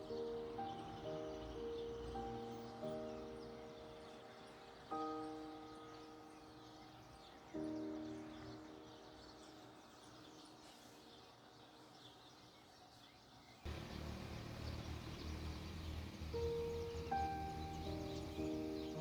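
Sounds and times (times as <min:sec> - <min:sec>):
piano chord: 0:00.0 - 0:10.5, 0:13.7 - 0:19.0
faint bird chirps: 0:00.0 - 0:19.0
low steady rumble: 0:13.7 - 0:18.4
piano note: 0:16.0 - 0:19.0.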